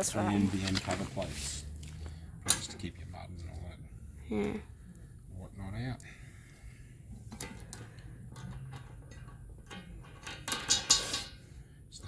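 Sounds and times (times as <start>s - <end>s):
metal hardware clinking and rattling: 2.4s - 3.8s, 7.3s - 11.5s.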